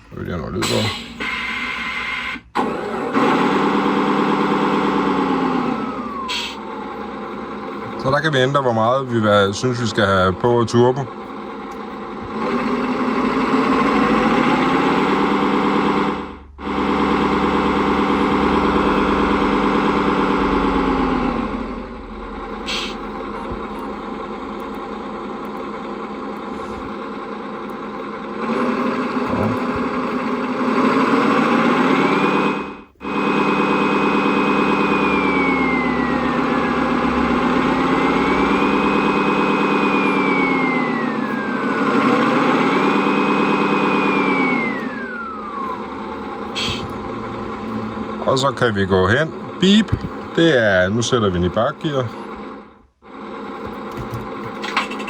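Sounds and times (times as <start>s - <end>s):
simulated diesel truck engine revving: 0.0s - 55.0s
high turbo whistle: 0.9s - 2.4s, 33.0s - 48.8s.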